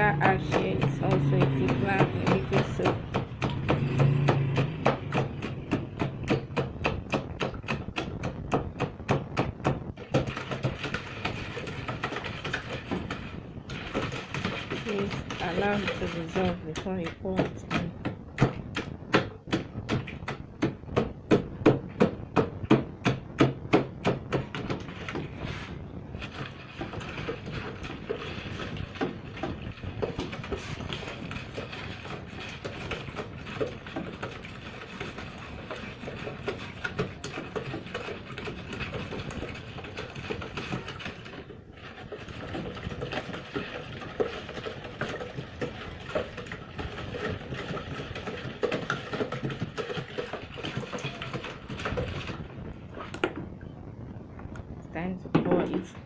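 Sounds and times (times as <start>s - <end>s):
stirrer scraping and clinking: 0.0s - 8.1s, 9.9s - 19.0s, 24.0s - 53.4s
stirrer knocking against container: 0.0s - 53.5s.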